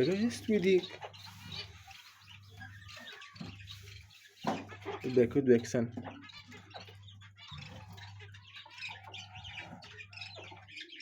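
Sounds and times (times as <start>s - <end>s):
faint bird chirping: 0.0s - 11.0s.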